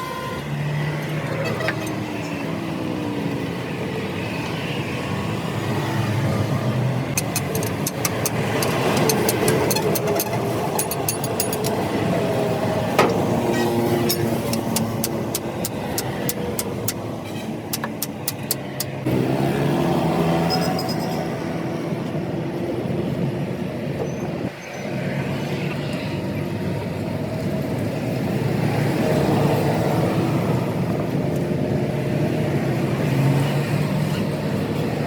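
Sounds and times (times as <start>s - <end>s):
sharp clicks: 7.1s - 11.8s, 14.0s - 17.0s, 17.7s - 19.0s.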